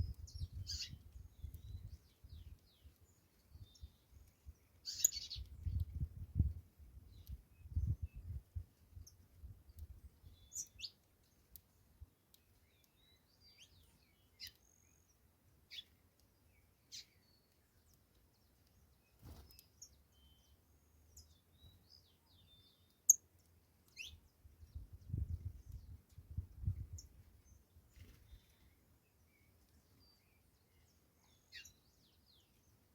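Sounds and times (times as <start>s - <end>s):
finch chirping: 0.0s - 4.1s, 4.7s - 5.8s, 10.3s - 11.5s, 12.6s - 15.1s, 23.9s - 24.2s, 30.0s - 32.6s.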